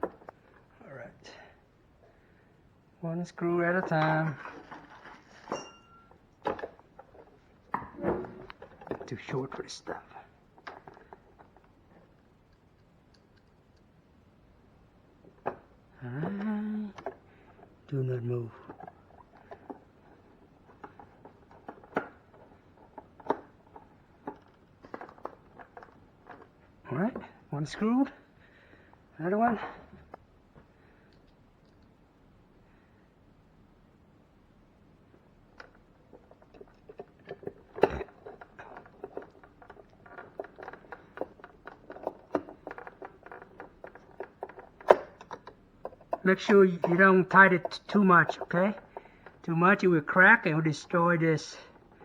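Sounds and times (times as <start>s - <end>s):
screw clicking and squeaking: 37.8s - 52.0s.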